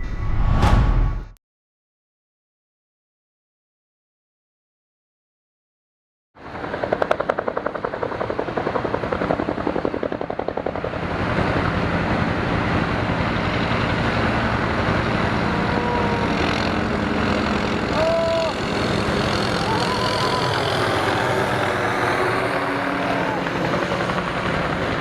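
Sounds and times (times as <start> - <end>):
motor running: 14.4 - 24.7.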